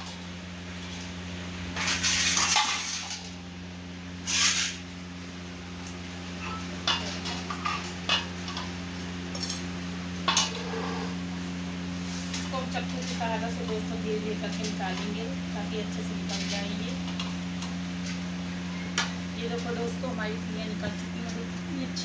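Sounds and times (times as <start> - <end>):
metal plates scraping and clanking: 1.7 - 3.4, 4.2 - 4.8, 6.3 - 8.7, 10.2 - 11.2
metal plates clinking: 6.4 - 8.8.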